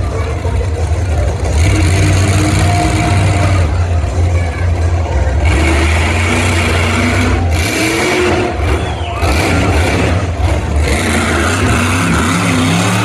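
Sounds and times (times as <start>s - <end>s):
monster truck engine droning: 0.0s - 13.0s.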